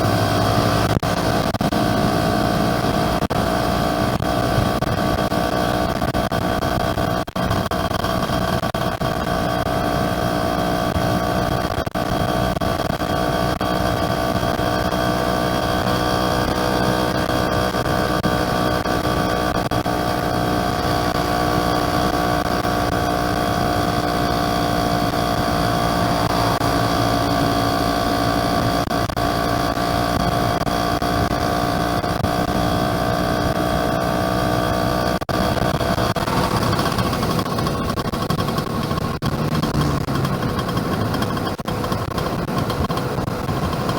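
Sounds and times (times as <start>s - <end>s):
two-stroke motorcycle engine running: 0.0s - 43.9s.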